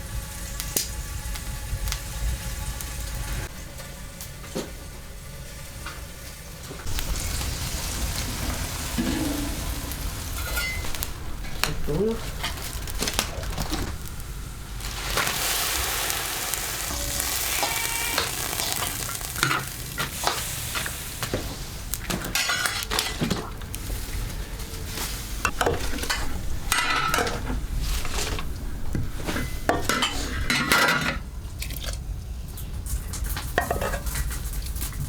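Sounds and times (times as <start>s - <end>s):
food sizzling in a hot pan: 6.8s - 23.2s
metal spatula scraping a pan: 10.4s - 11.1s, 16.8s - 21.0s, 25.5s - 31.2s.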